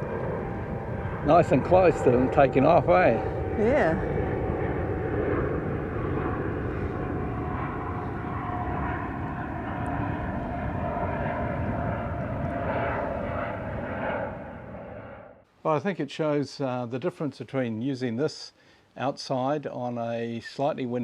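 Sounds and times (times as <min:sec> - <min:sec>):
wind rumble on microphone: 0:00.0 - 0:15.0
propeller aircraft engine drone: 0:00.0 - 0:15.5.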